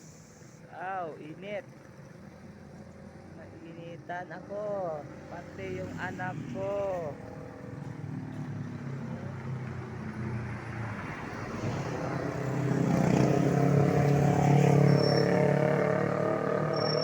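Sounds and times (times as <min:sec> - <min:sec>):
vehicle engine passing: 0:04.9 - 0:17.0.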